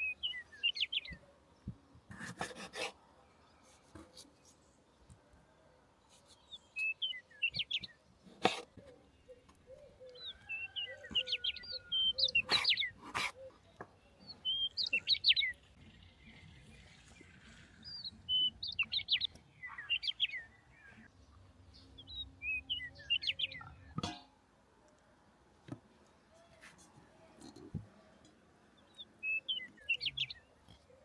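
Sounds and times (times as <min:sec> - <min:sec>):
small songbirds twittering: 0:00.0 - 0:01.8, 0:06.1 - 0:24.0, 0:27.4 - 0:31.0.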